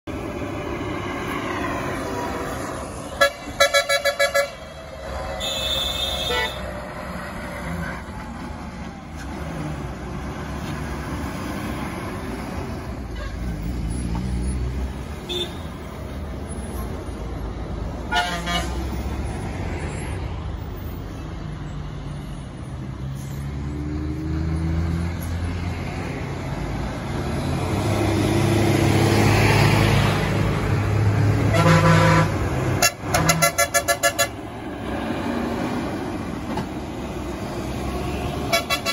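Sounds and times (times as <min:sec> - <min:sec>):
truck diesel engine: 0:00.0 - 0:38.9
rapidly pulsing horn blast: 0:31.5 - 0:34.4
stuttering horn: 0:31.5 - 0:34.4.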